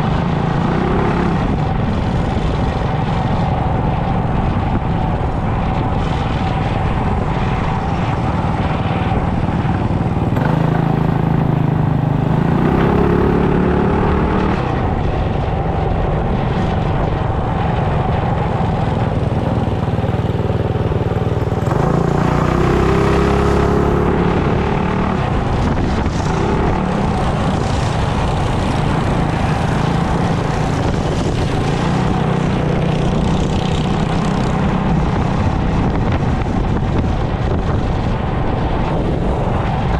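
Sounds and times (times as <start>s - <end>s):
wind on microphone: 0.0s - 39.9s
mini bike engine revving: 8.4s - 14.9s, 19.4s - 36.5s.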